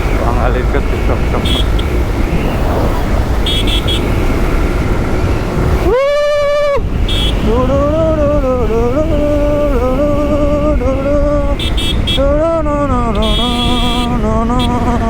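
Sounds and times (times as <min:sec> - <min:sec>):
motorcycle engine running: 0:00.0 - 0:15.0
wind noise: 0:00.0 - 0:15.0
man humming a tune: 0:00.2 - 0:01.8, 0:05.8 - 0:15.0
vehicle horn: 0:00.5 - 0:02.6, 0:03.4 - 0:04.5, 0:07.0 - 0:07.9, 0:11.4 - 0:15.0.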